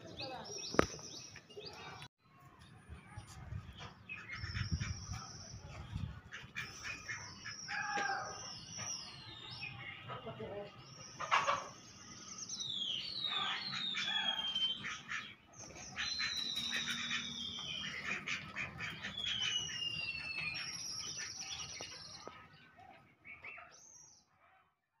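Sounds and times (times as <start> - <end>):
birds whistling calls: 4.1 - 22.5.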